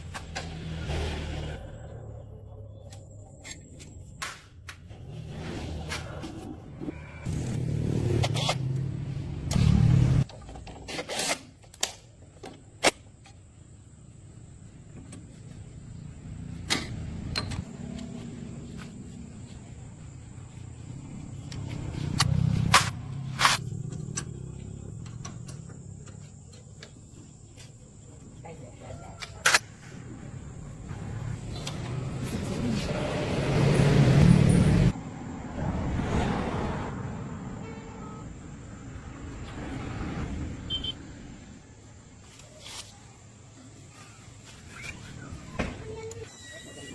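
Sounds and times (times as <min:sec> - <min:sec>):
car engine rumbling: 0:14.6 - 0:28.6.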